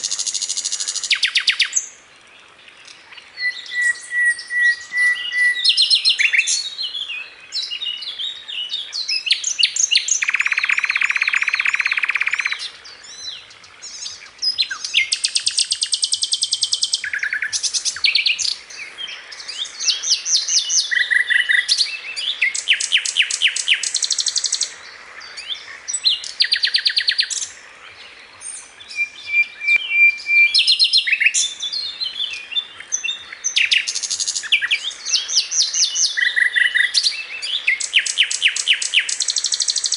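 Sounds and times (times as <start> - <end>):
flycatcher singing: 9.0 - 12.6.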